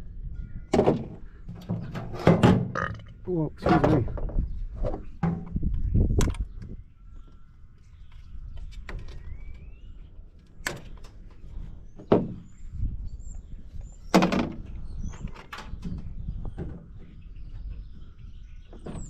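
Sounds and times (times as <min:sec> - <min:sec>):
metal panels knocking and clanking: 0:00.7 - 0:06.4.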